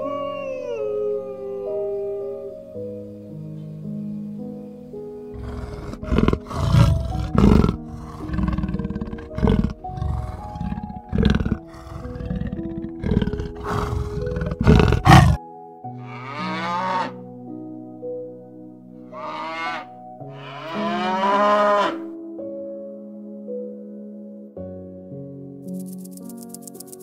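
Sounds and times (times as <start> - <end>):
soft background music: 0.0 - 27.0
big cat growling and snarling: 5.3 - 15.4
cow mooing: 5.4 - 15.4, 16.0 - 17.2, 19.1 - 22.1.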